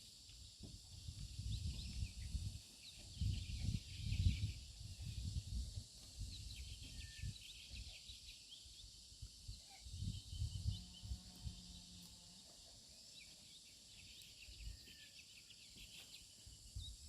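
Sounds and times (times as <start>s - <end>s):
small birds chirping: 0.0s - 17.0s
wind gusting on microphone: 0.6s - 7.9s, 9.4s - 11.6s
insect drone: 3.4s - 17.0s.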